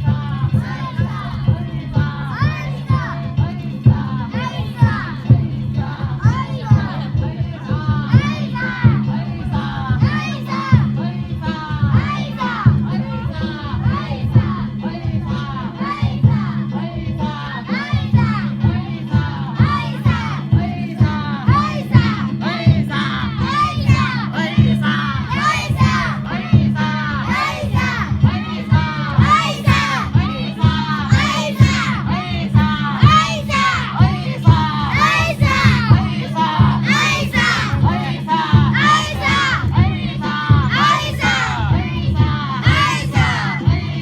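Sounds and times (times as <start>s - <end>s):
crowd shouting and chanting: 0.0s - 44.0s
taiko drums beating: 18.2s - 44.0s.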